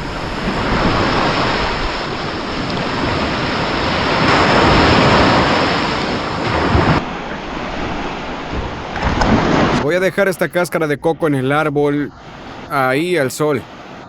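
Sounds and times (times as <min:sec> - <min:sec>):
surf washing onto beach: 0:00.0 - 0:14.0
wind buffeting microphone: 0:00.0 - 0:14.0.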